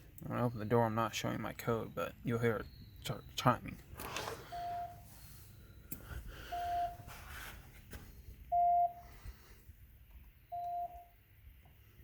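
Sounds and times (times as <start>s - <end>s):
alarm panel beeping: 2.5s - 7.1s, 8.5s - 9.0s, 10.5s - 11.1s.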